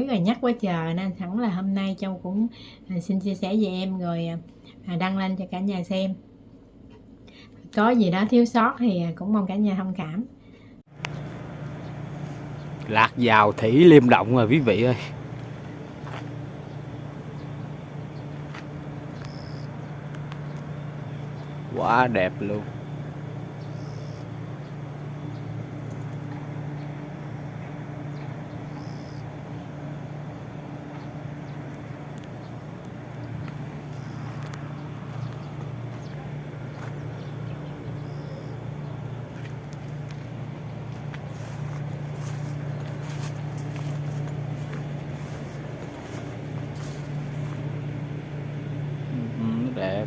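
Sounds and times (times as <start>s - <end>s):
low engine hum: 10.8s - 50.0s.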